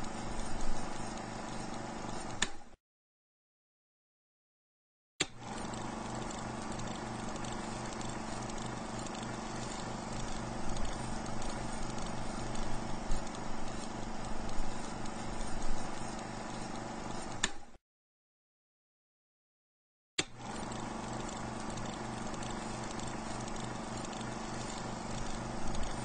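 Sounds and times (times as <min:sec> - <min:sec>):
stationary engine running rhythmically: 0:05.4 - 0:16.8, 0:20.4 - 0:26.0.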